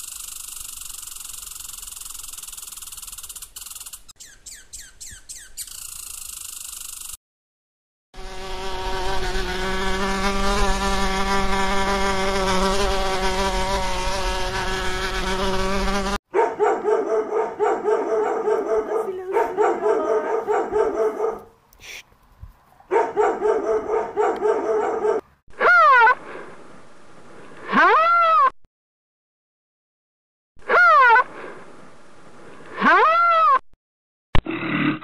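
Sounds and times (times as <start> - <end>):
honeybee buzzing: 8.2 - 16.2.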